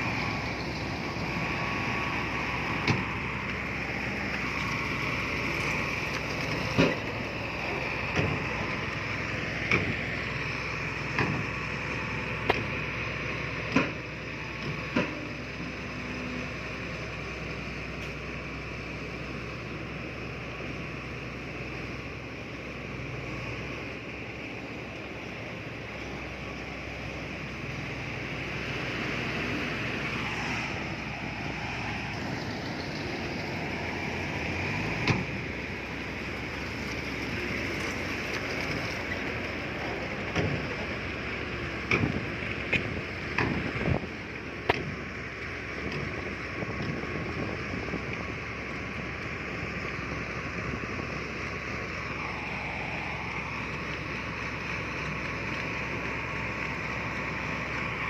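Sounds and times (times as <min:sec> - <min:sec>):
heavy earthmoving machinery: 0:00.0 - 0:58.0.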